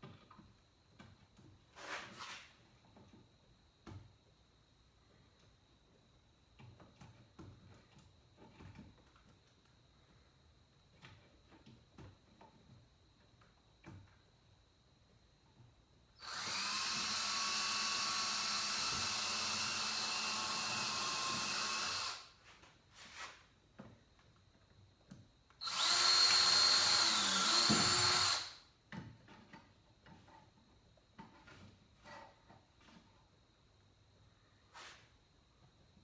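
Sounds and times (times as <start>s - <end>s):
cordless drill driving screws: 16.2s - 22.3s, 25.6s - 28.6s.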